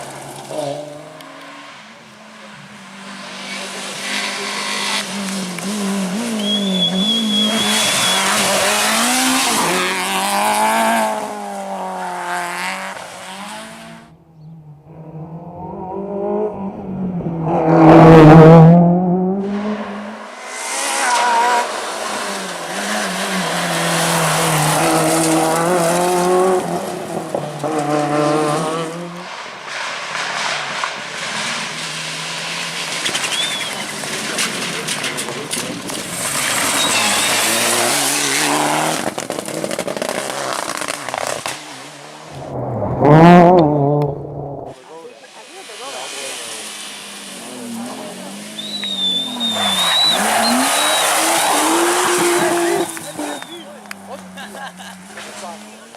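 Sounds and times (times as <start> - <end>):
rally car engines revving: 0.0 - 55.9
tyre squeal: 6.3 - 9.7, 33.0 - 34.0, 36.2 - 38.4, 48.4 - 53.8
car passing close by: 14.9 - 39.3, 40.2 - 55.9.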